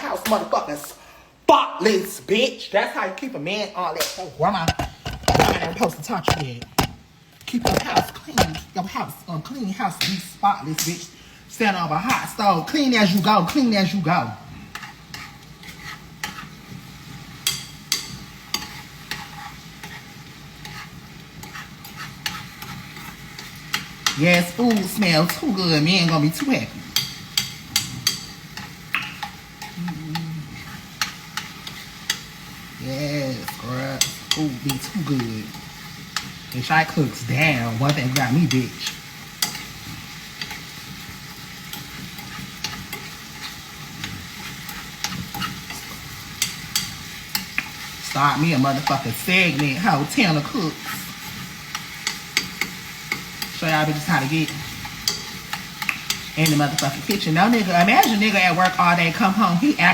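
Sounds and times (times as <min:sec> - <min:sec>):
utensil stirring in a metal pan: 0:03.0 - 0:59.9
utensil clicking against pan: 0:04.0 - 0:08.7, 0:20.6 - 0:29.8, 0:54.4 - 0:58.8
utensil knocking on pan: 0:04.6 - 0:08.7.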